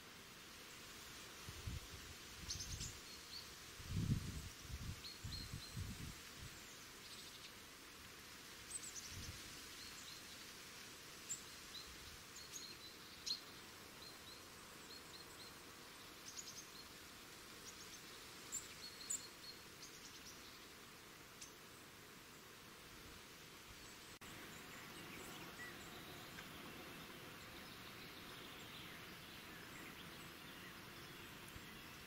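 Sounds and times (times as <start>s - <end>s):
steady low hiss: 0.0s - 32.0s
small birds chirping: 2.4s - 7.6s, 11.3s - 22.6s, 23.7s - 32.0s.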